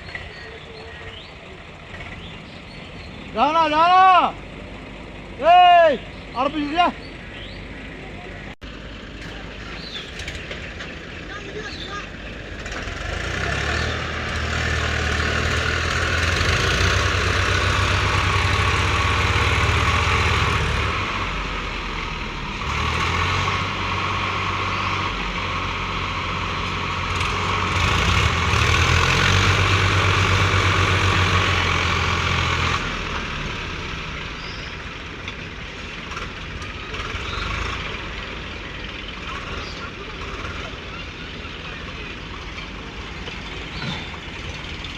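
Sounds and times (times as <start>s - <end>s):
heavy diesel engine running: 0.0s - 44.9s.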